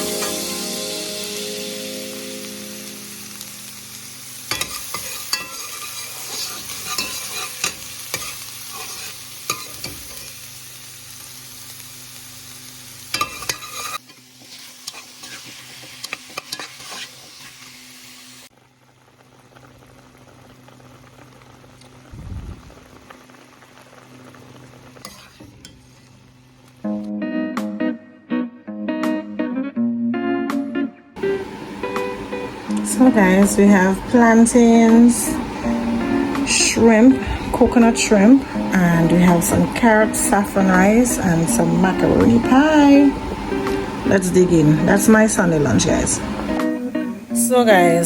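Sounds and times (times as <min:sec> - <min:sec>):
food sizzling in hot oil: 0:00.0 - 0:27.0, 0:31.2 - 0:48.0
utensil scraping in pan: 0:04.3 - 0:10.5, 0:13.0 - 0:18.5, 0:24.1 - 0:26.7.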